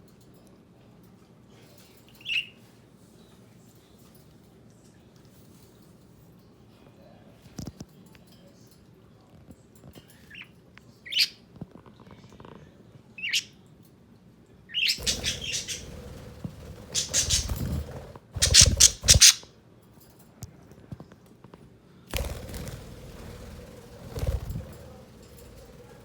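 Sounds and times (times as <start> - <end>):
budgerigars chirping and squawking: 14.7 - 19.5.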